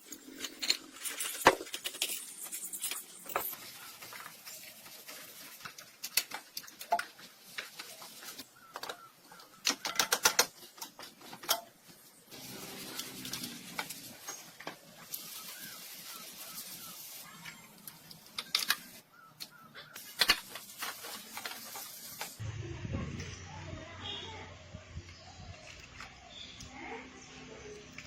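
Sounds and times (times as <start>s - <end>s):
hand tools clicking and tapping: 0.1s - 15.3s, 17.4s - 22.4s.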